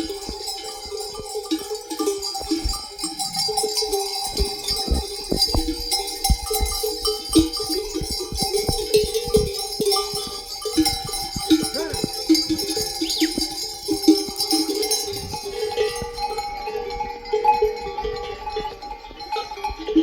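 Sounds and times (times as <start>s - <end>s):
animal bells clanking: 0.0s - 20.0s.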